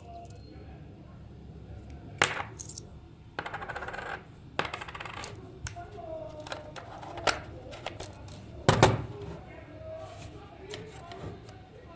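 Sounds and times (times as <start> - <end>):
coins clinking into coin bank: 2.2 - 5.4.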